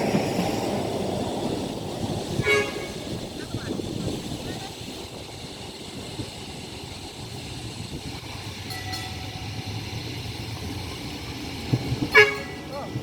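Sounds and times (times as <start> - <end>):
tram running on rails: 0.0 - 13.0.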